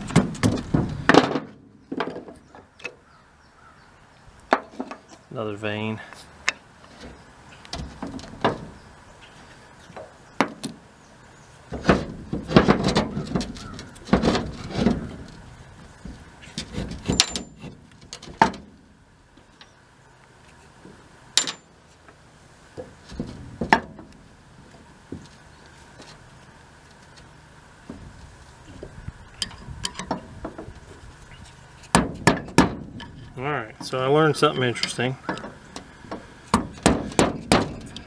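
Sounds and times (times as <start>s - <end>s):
metal clunking and scraping: 0.0s - 3.0s, 4.5s - 5.3s, 6.4s - 10.9s, 11.6s - 19.8s, 20.4s - 38.0s
metal parts knocking and clicking: 16.5s - 18.6s, 21.4s - 21.7s.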